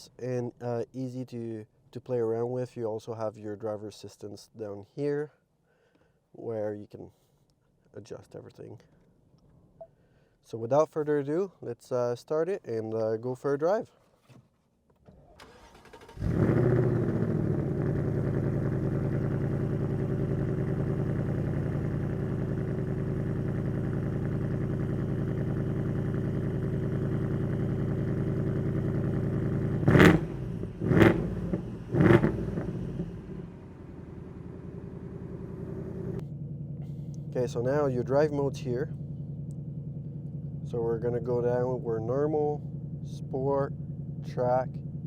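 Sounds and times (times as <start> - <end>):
car engine starting and idling: 15.0 - 45.0
car engine revving: 15.6 - 36.2.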